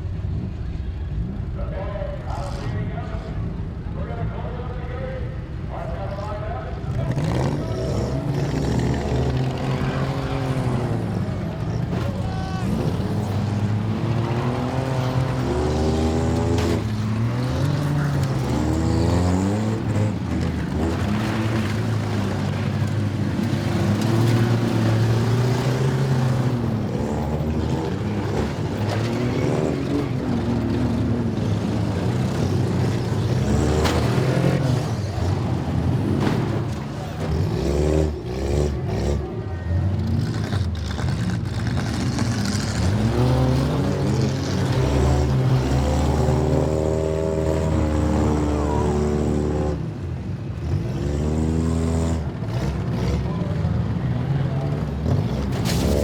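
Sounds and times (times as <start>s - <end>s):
car engines revving hard: 2.2s - 56.0s.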